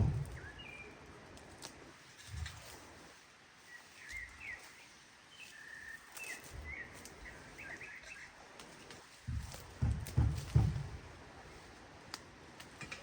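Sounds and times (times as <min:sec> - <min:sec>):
low thump: 0:00.0 - 0:00.4
small bird chirping: 0:03.6 - 0:08.4
faint clicks: 0:12.1 - 0:13.0.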